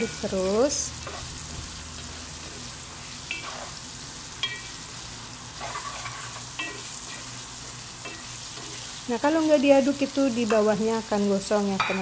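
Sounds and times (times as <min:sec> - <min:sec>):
food sizzling in oil: 0:00.0 - 0:12.0
wooden spatula scraping pan: 0:05.6 - 0:07.3, 0:08.1 - 0:09.0.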